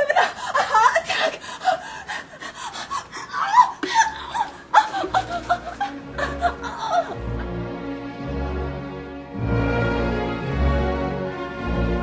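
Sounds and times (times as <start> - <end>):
women laughing: 0.0 - 1.8, 3.0 - 7.5
music: 3.9 - 12.0.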